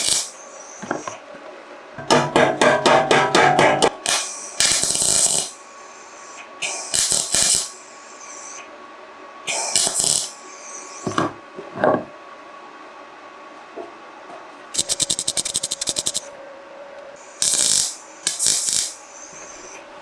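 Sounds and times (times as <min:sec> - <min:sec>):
knocks on metal: 0:02.0 - 0:04.0
hand tool striking metal: 0:02.0 - 0:04.3.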